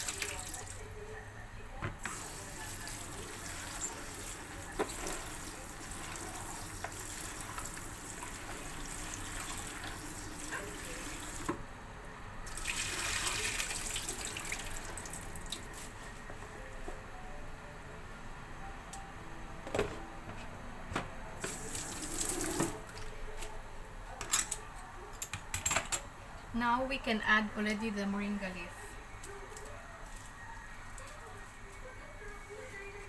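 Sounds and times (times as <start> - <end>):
water running from a tap: 2.1 - 11.5, 12.5 - 15.7.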